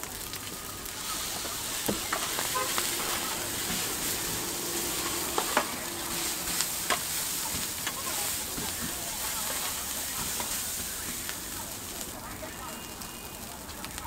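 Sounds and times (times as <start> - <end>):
rice sizzling on a griddle: 0.0 - 14.0
metal spatula scraping: 0.9 - 11.0
spatula clacking on griddle: 1.1 - 12.1.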